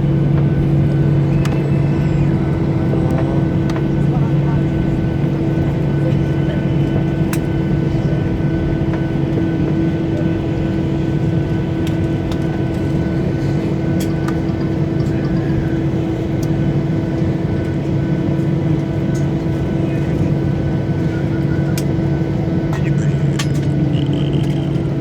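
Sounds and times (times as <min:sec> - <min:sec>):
jet engines humming at idle: 0:00.0 - 0:25.0.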